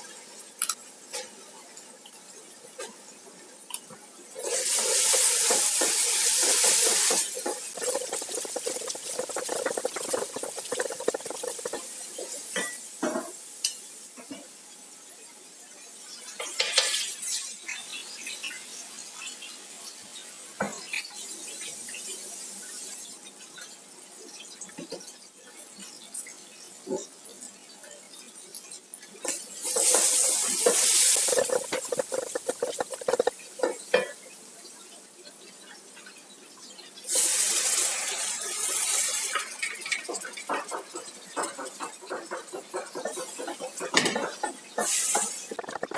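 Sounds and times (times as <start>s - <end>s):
spoon stirring food in a pot: 4.4s - 12.8s, 28.6s - 34.2s, 39.4s - 45.9s.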